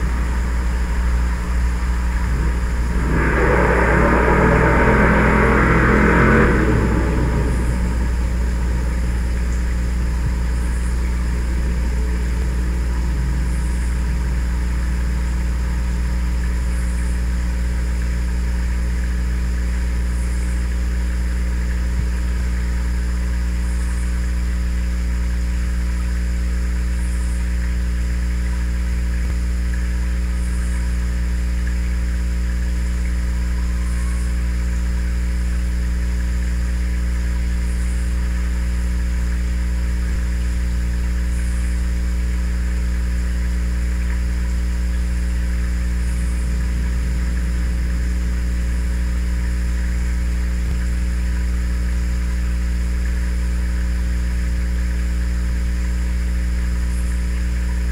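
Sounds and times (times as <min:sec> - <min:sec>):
truck moving away: 0:00.0 - 0:19.2, 0:43.9 - 0:51.0
low hum: 0:00.0 - 0:57.9.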